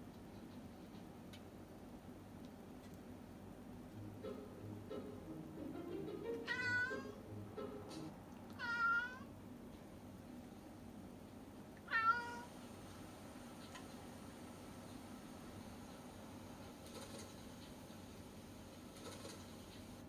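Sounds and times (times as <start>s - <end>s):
cat meowing: 6.4s - 7.2s, 8.6s - 9.3s, 11.9s - 12.5s.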